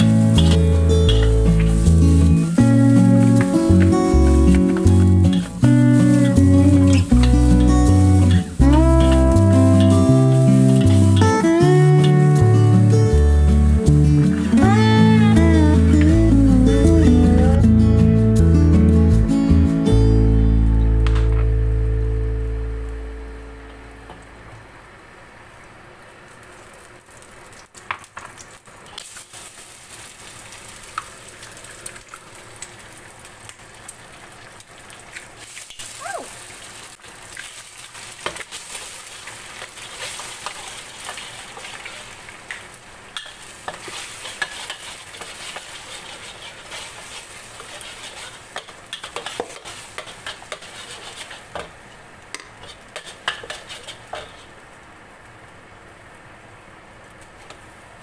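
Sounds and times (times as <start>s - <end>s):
eggs sizzling in hot oil: 0.0s - 18.3s, 25.4s - 55.2s
metal spatula scraping a pan: 0.2s - 2.4s, 4.8s - 11.4s, 43.2s - 51.8s, 52.6s - 54.6s.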